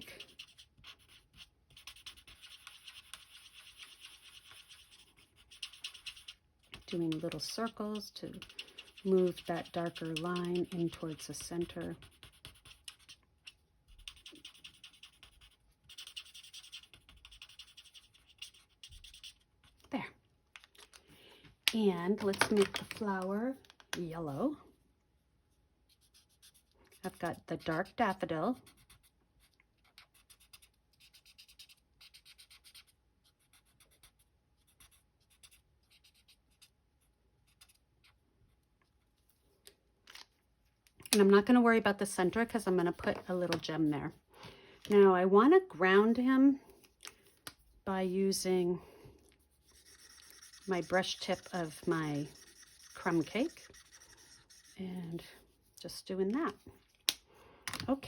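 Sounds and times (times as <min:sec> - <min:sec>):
marker scratching on cardstock: 0:00.0 - 0:19.8, 0:25.9 - 0:38.2, 0:49.4 - 0:56.6.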